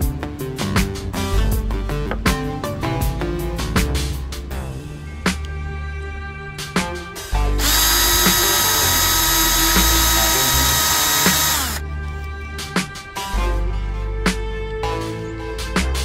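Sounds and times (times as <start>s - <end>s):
background music with a beat: 0.0s - 16.0s
electric drill whining: 7.6s - 11.8s.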